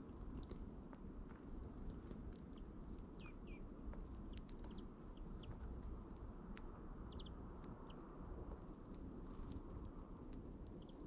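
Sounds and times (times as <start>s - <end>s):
low outdoor rumble: 0.0s - 11.0s
songbirds chirping: 2.5s - 5.6s, 7.0s - 8.1s, 10.7s - 11.0s.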